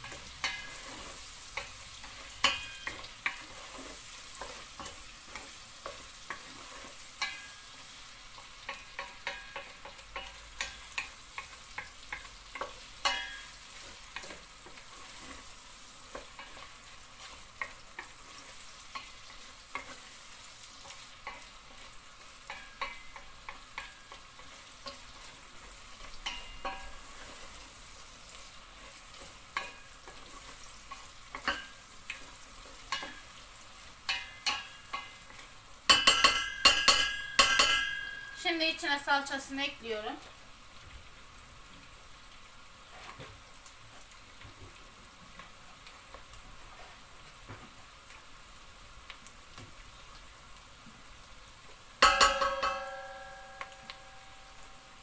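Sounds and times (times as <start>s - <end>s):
meat and onions sizzling: 0.0s - 55.0s
wooden spoon scraping pot: 0.1s - 7.5s.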